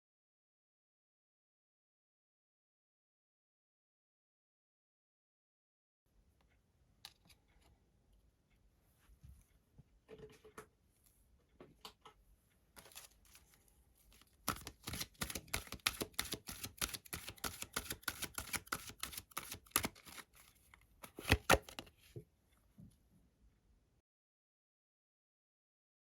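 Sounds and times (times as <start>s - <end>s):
cards being shuffled: 12.8s - 21.9s
card slaps: 14.5s - 20.2s, 21.0s - 21.9s.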